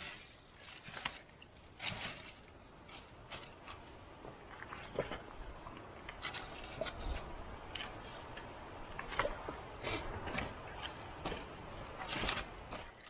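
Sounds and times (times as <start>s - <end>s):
objects being handled: 0.0s - 5.2s.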